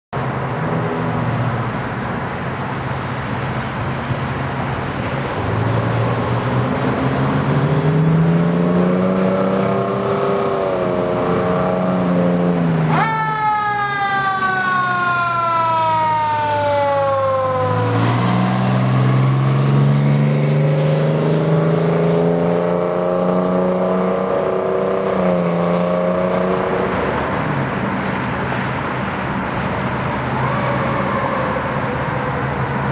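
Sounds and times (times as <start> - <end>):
diesel engine accelerating: 0.2 - 32.9
siren whooping: 12.9 - 20.0.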